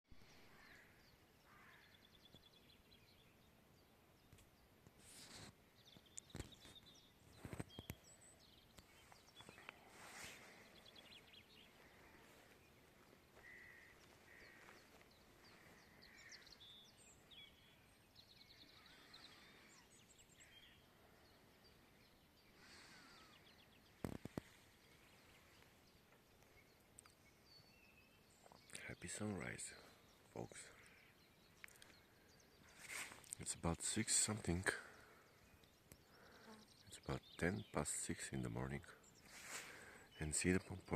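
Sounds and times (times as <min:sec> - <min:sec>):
faint birdsong chirps and trills: 0:00.1 - 0:40.9.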